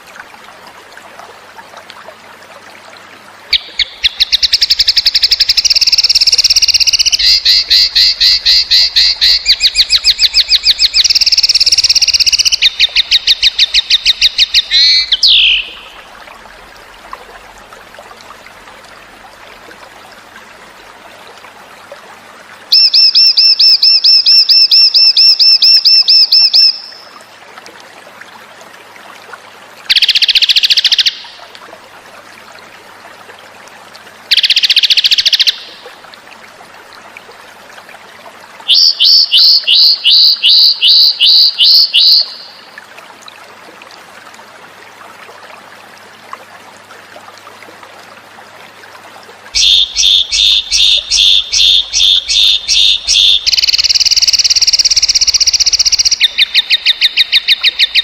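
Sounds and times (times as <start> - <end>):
faint trickling water: 0.0 - 58.0
songbird rapid trilling: 49.6 - 58.0.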